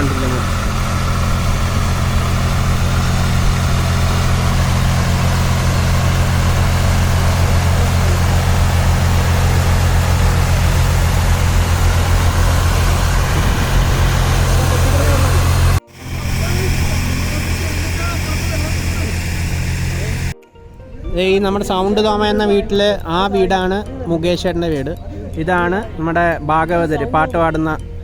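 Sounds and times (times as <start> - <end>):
boat engine droning: 0.0 - 20.4.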